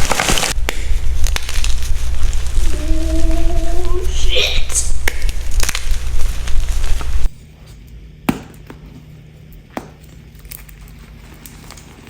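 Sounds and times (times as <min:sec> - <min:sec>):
chalk crunching and cracking: 0:00.0 - 0:02.9, 0:05.0 - 0:07.3.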